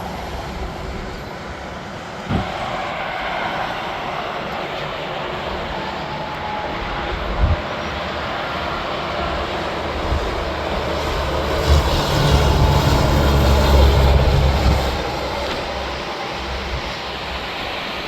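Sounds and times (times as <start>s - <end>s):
highway traffic noise: 0.0s - 18.0s
short low thump: 2.3s - 2.6s
diesel truck engine drone: 4.4s - 18.0s.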